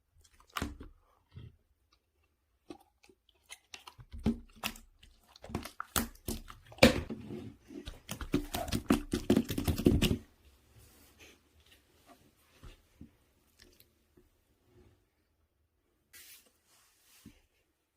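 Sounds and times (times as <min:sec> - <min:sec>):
slime squelching: 0:00.0 - 0:10.3.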